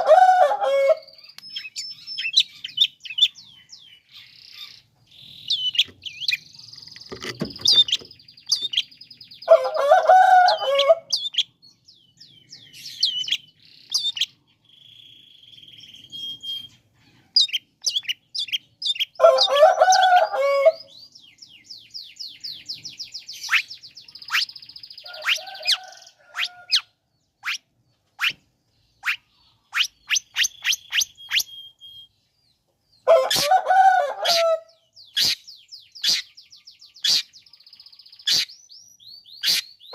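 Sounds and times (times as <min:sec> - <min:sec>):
bird singing chirps and trills: 0:00.9 - 0:33.5, 0:34.3 - 0:39.9
harsh rasping bird call: 0:23.4 - 0:27.6, 0:33.1 - 0:36.4, 0:37.0 - 0:37.4, 0:38.2 - 0:38.6, 0:39.4 - 0:39.9.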